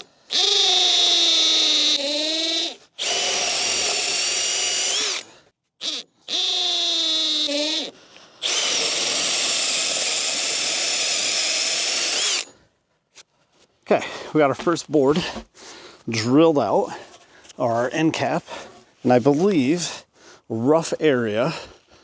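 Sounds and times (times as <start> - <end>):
power drill boring into wood: 0.0 - 12.6.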